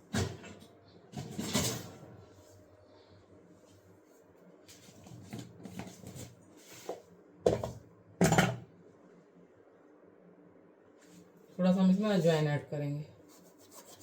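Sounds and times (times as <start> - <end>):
soft scraping and rustling: 3.5 - 7.2.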